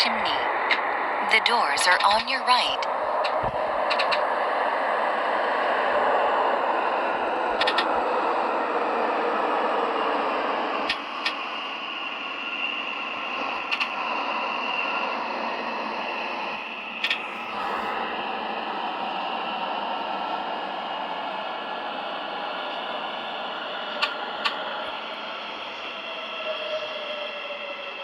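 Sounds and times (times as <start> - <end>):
subway train wheels rumbling: 0.0 - 28.0.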